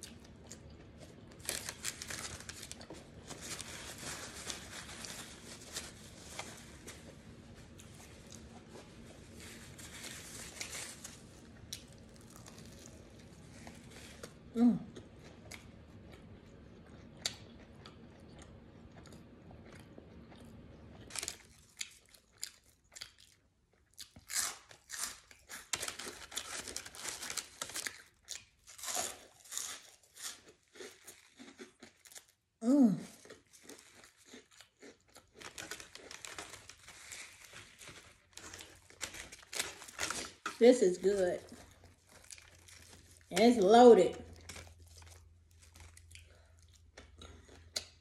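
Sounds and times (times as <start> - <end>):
crunching and chewing chips: 0.0 - 48.0
person humming briefly: 14.5 - 14.9.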